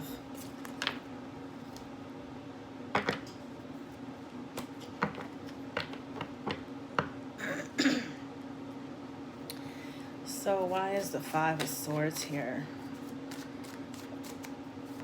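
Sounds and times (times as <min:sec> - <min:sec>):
cards rustling: 0:10.7 - 0:15.0.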